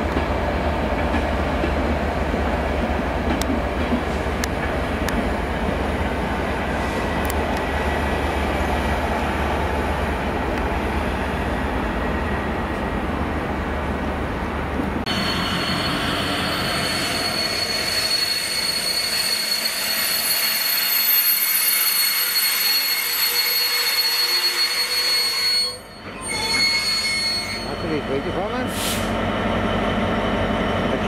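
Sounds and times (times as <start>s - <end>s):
passenger train rumbling past: 0.0s - 21.0s, 27.7s - 31.0s
train wheels squealing: 15.1s - 28.1s.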